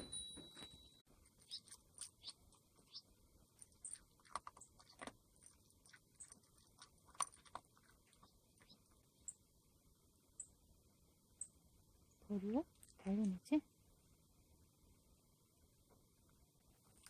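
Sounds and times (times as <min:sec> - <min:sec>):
cat crunching dry food: 0:03.5 - 0:08.3.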